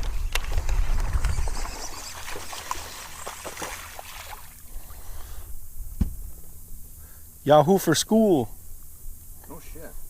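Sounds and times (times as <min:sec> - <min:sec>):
water lapping against boat: 0:00.6 - 0:05.4
small clicks and splashes: 0:02.0 - 0:04.5.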